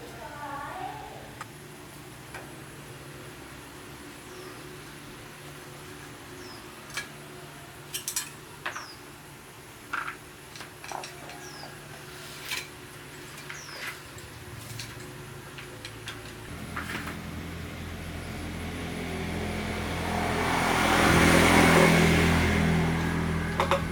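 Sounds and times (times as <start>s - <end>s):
low hum: 16.5s - 23.9s.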